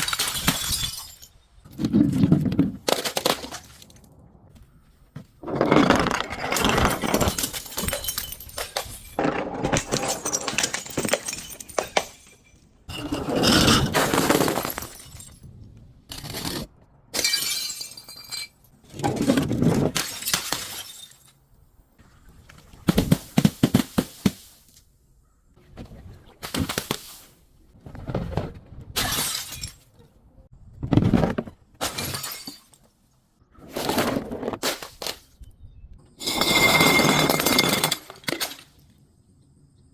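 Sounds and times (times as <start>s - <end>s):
glass crunching and breaking: 0.0s - 1.5s, 5.6s - 12.7s, 13.4s - 15.5s, 16.1s - 18.7s, 29.0s - 29.8s, 31.8s - 32.8s.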